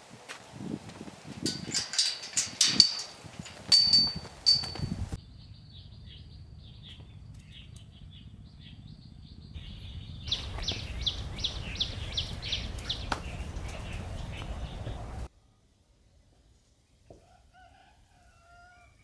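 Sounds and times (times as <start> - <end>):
bird chirping: 4.6 - 15.2.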